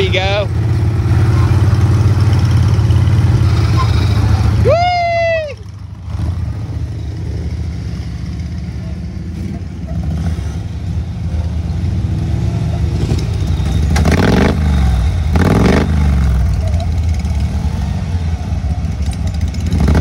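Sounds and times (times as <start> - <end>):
lawn tractor engine revving: 13.9 - 16.6, 19.0 - 20.0.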